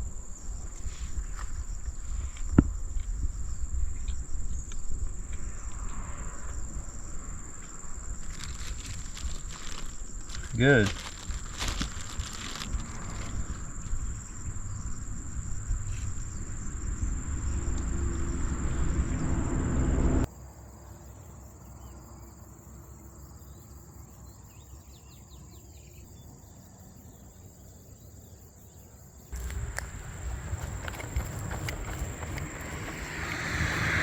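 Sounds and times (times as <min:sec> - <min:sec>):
faint insect chirps: 0:00.0 - 0:34.0
high-pitched insect drone: 0:05.2 - 0:20.3, 0:29.4 - 0:34.0
low rumble: 0:12.0 - 0:20.3, 0:29.4 - 0:34.0.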